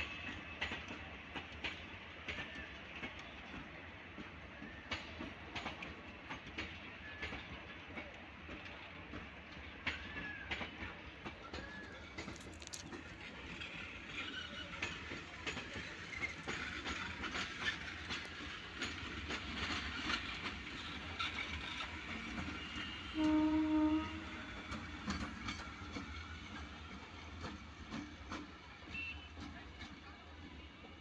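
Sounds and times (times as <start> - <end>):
train rumble: 0.0 - 31.0
train wheels clattering on rails: 0.0 - 31.0
short train horn note: 23.1 - 24.6.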